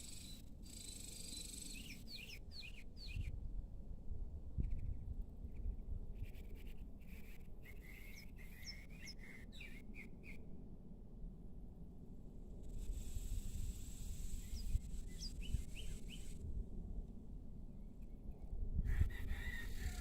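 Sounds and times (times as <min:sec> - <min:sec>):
songbirds chirping: 0:00.0 - 0:03.4, 0:07.0 - 0:10.4
steady low rumble: 0:10.5 - 0:19.1.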